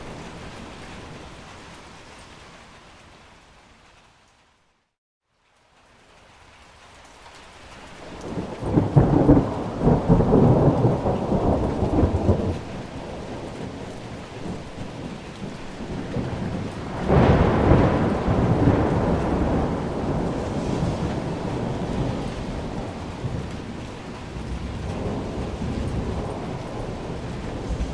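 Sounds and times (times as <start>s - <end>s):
rain hissing: 5.7s - 27.9s
thunder rumbling: 8.0s - 27.9s.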